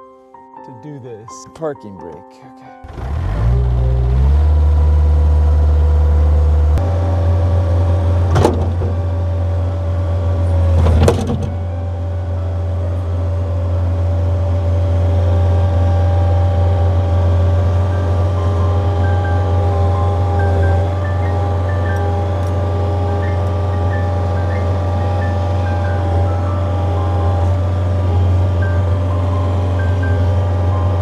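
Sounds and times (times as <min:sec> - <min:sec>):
diesel engine running: 0:02.8 - 0:31.0
sharp clunks: 0:08.2 - 0:09.2, 0:10.6 - 0:11.8.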